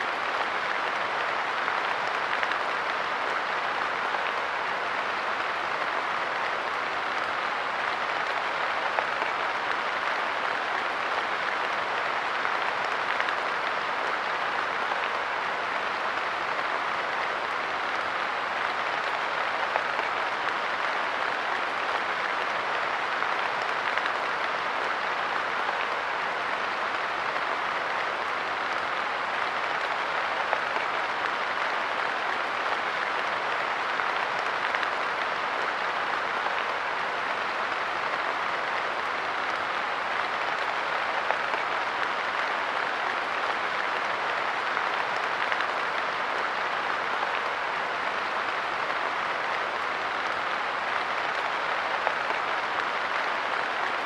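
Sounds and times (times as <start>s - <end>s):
light rain pattering: 0.0s - 54.0s.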